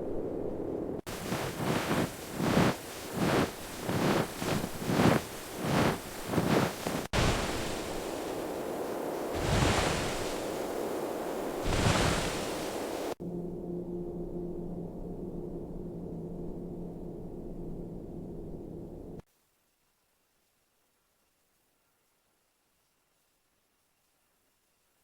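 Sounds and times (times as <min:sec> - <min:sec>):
wind blowing hard: 0:00.0 - 0:13.2.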